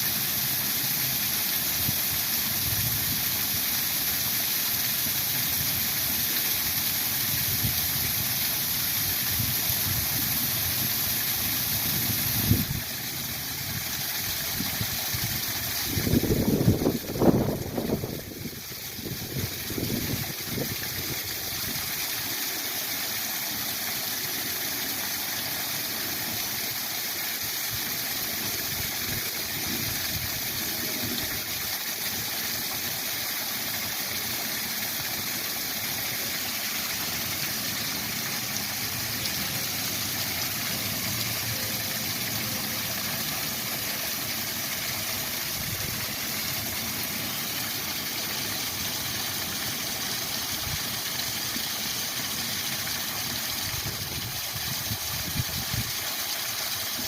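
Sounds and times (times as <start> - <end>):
wind gusts on microphone: 15.9 - 20.7
waterfall rushing: 27.4 - 57.0.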